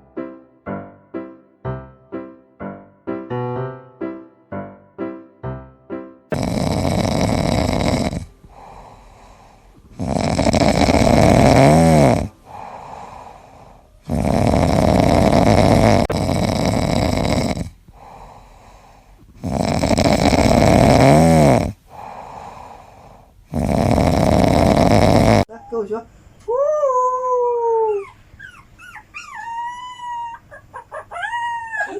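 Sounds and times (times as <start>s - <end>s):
pet snoring: 6.3s - 25.5s.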